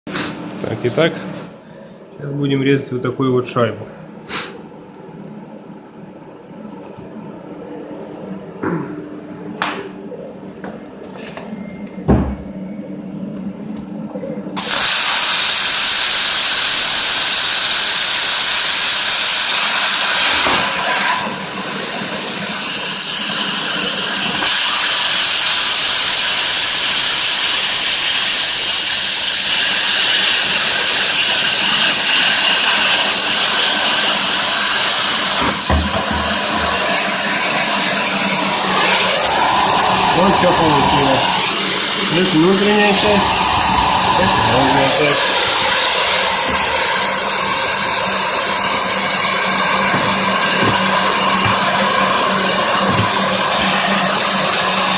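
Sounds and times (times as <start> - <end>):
low machine hum: 0.4 - 14.6
plasma arc hissing: 14.6 - 54.9.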